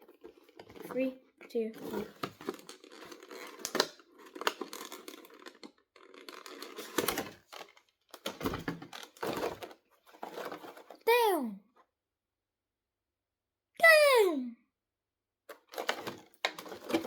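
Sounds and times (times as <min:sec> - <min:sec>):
cardboard and plastic rustling: 0:00.0 - 0:11.0, 0:15.5 - 0:17.0.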